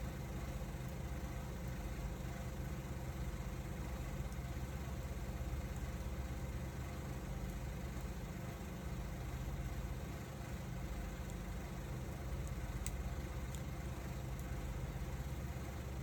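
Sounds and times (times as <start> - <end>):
fire low rumble: 0.0 - 16.0
firewood crackling: 10.8 - 16.0.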